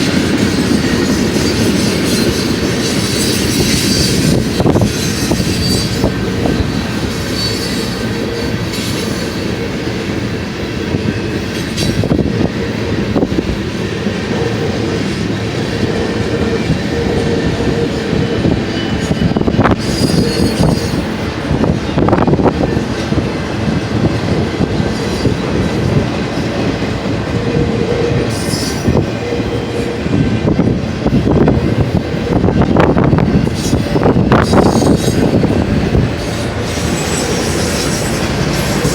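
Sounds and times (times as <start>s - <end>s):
wheel squeal: 0.0s - 9.8s, 16.5s - 21.3s, 28.1s - 30.0s, 33.4s - 38.9s
freight train wheels rumbling: 0.0s - 38.9s
wheels clacking over rail joints: 0.0s - 38.9s.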